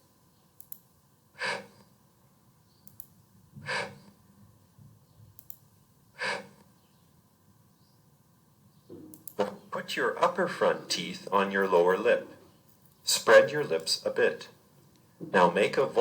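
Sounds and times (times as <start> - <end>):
person making hissing f sounds: 3.7 - 4.0, 6.2 - 6.6.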